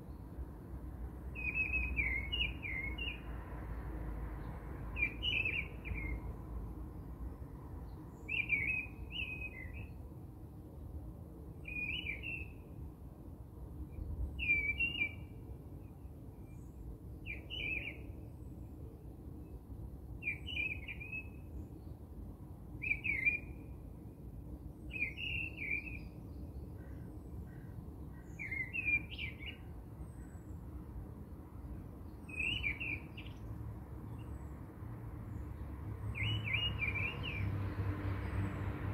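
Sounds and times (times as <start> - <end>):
bird chirping: 1.3 - 3.2, 5.0 - 6.2, 7.8 - 10.0, 11.6 - 12.6, 14.4 - 15.3, 16.4 - 18.3, 20.2 - 22.0, 22.8 - 23.7, 24.8 - 30.6, 32.0 - 33.5, 36.0 - 37.5.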